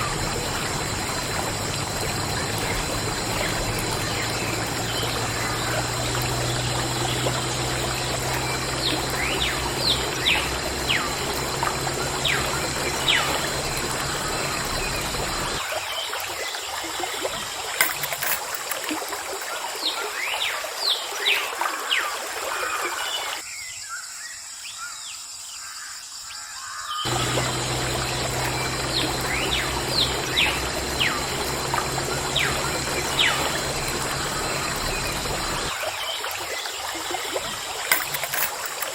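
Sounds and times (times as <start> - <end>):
low motor hum: 0.0 - 15.6, 27.1 - 35.8
plinking drips: 0.0 - 15.6, 17.0 - 19.6, 27.1 - 38.9
water trickling and splashing: 0.0 - 23.4, 27.0 - 38.9.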